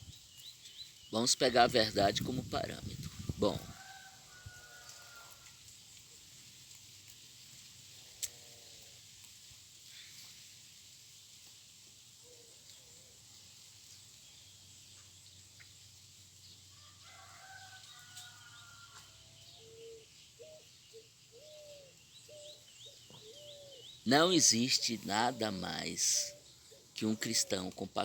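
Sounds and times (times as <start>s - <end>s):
distant birds calling: 19.3s - 28.0s.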